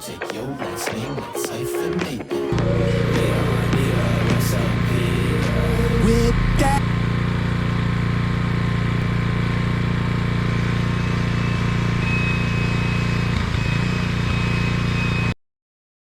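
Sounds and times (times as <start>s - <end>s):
lawn mower engine running: 2.5s - 15.0s.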